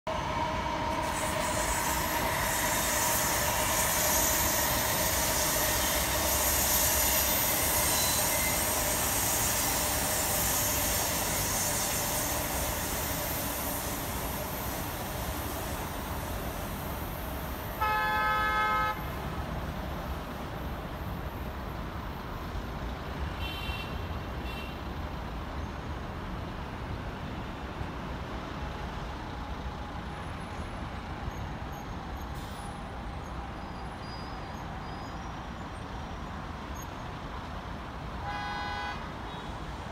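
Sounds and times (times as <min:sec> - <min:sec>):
train rumble and hiss: 0:00.1 - 0:39.9
train horn: 0:17.7 - 0:19.1, 0:38.2 - 0:39.6.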